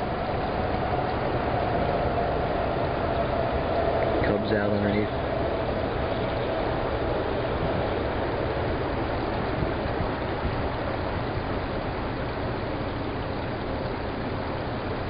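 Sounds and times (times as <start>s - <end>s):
car engine idling: 0.0s - 15.0s
steady rushing hiss: 0.0s - 15.0s.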